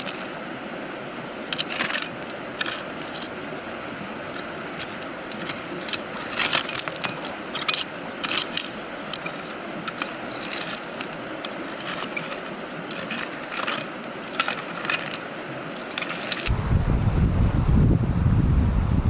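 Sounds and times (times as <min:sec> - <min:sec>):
faint steady hiss: 0:15.2 - 0:19.0.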